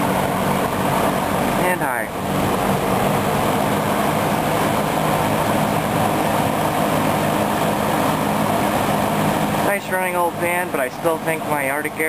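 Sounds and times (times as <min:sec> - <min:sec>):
box fan running: 0:00.0 - 0:12.0.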